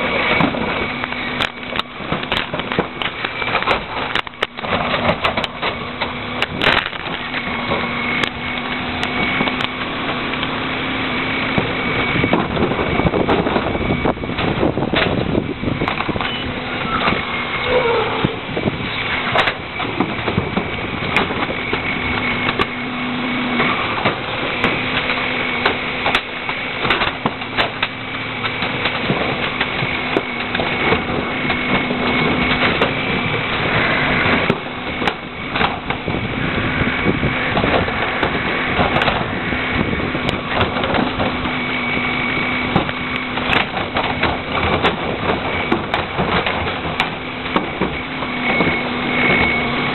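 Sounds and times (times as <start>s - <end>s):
garbage truck whine: 0.0s - 49.9s
trash cracking and crunching: 0.0s - 49.9s.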